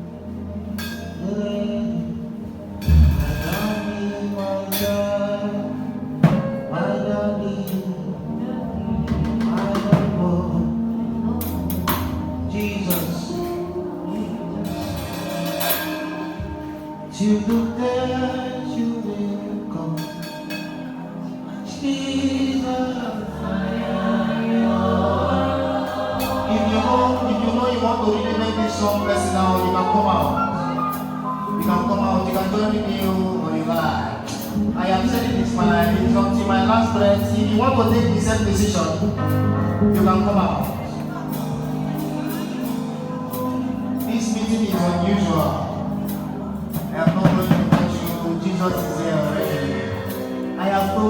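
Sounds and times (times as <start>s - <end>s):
bass and keyboard: 0.0s - 51.0s
gospel choir singing: 1.2s - 6.4s, 20.9s - 51.0s
sharp percussion hits: 2.8s - 4.2s.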